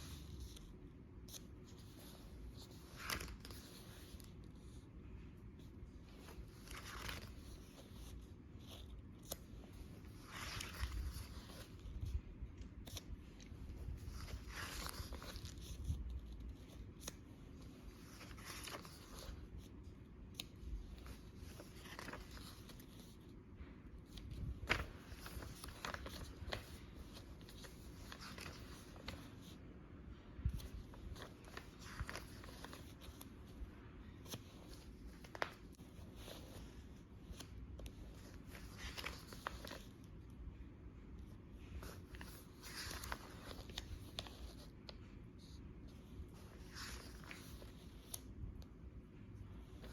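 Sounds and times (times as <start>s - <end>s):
paper pages turning: 0.0s - 4.8s, 5.6s - 29.6s, 30.4s - 40.3s, 41.3s - 49.9s.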